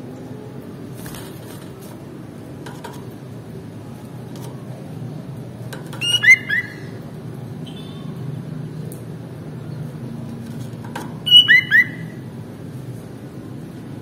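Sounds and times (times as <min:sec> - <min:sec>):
bird whistled notes: 0:06.0 - 0:06.9, 0:11.2 - 0:12.2.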